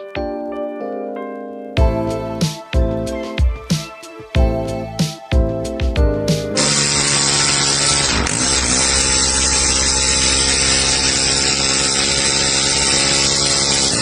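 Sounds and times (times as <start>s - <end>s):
model engine running at high speed: 6.6s - 14.0s.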